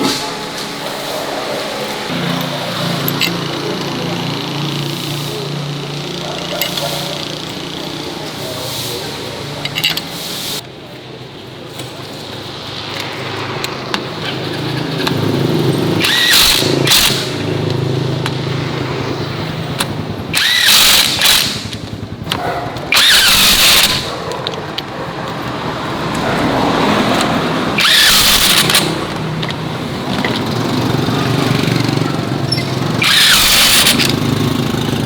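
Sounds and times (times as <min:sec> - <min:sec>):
farm vehicle engine running: 0:00.0 - 0:35.0
loud noisy bursts: 0:12.5 - 0:24.2, 0:26.0 - 0:35.0.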